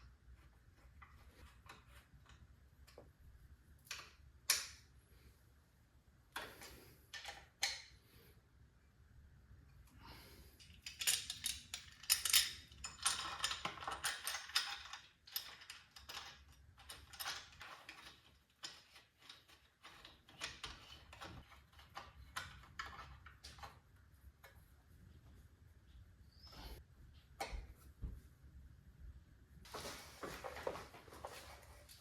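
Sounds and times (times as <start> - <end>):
hand tools clicking and clinking: 10.6 - 23.6.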